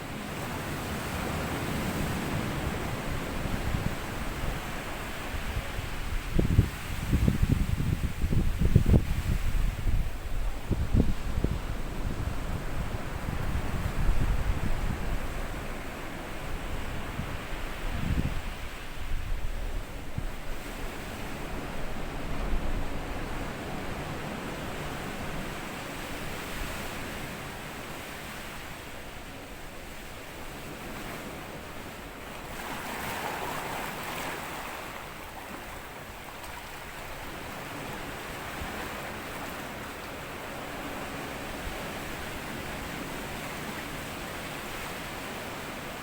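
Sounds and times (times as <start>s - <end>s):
waves washing over sand: 0.0s - 9.8s, 19.8s - 46.0s
wind rumble on microphone: 0.0s - 46.0s.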